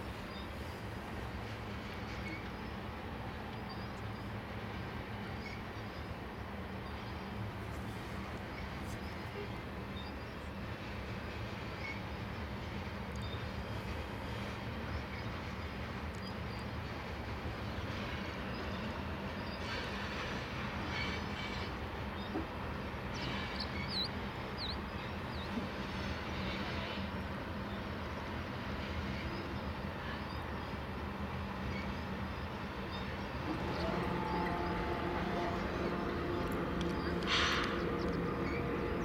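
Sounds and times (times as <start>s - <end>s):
freight train wheels rumbling: 0.0s - 39.0s
low drone: 33.2s - 39.0s.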